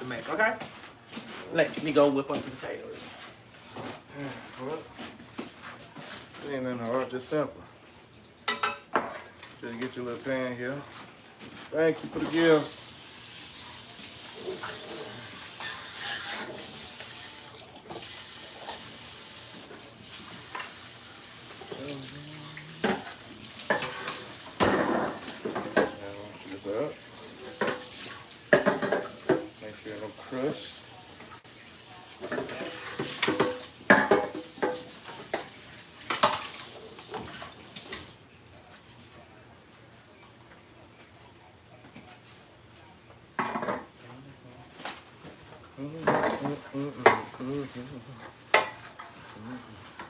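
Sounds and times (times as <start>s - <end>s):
kitchenware clattering: 8.4s - 10.0s, 12.0s - 12.8s, 13.6s - 17.1s, 17.9s - 38.1s, 43.4s - 44.0s, 46.0s - 50.0s.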